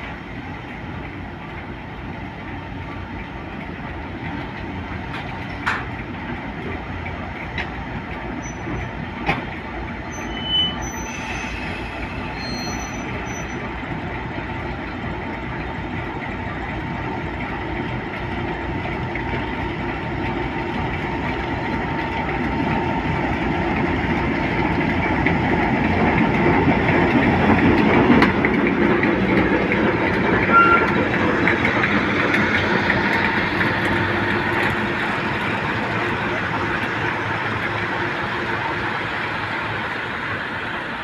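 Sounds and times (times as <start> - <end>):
diesel locomotive engine: 0.0 - 41.0
brief squeal: 8.4 - 8.9, 10.0 - 13.6, 30.5 - 30.9.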